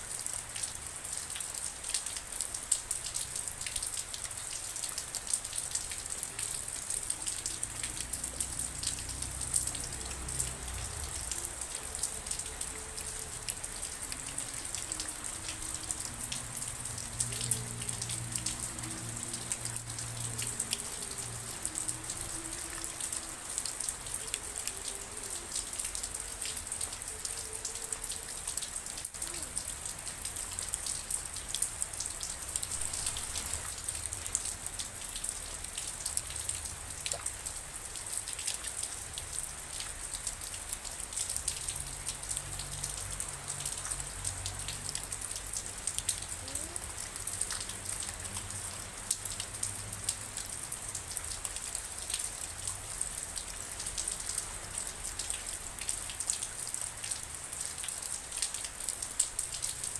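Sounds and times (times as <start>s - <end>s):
rain drops pattering: 0.0s - 59.9s.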